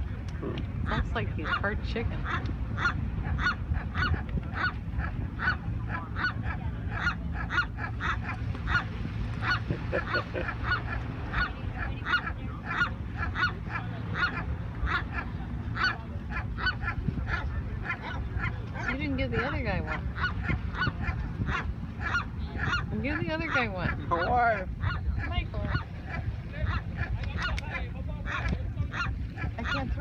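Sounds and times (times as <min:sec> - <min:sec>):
seagull clucking calls: 0:00.2 - 0:30.0.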